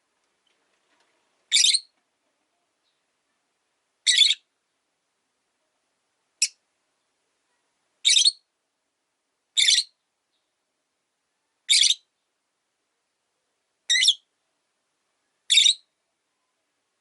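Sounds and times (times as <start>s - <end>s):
lovebird chirping calls: 1.5s - 1.9s, 4.0s - 4.5s, 6.4s - 6.6s, 8.0s - 8.5s, 9.6s - 10.5s, 11.7s - 12.1s, 13.9s - 14.3s, 15.5s - 15.9s.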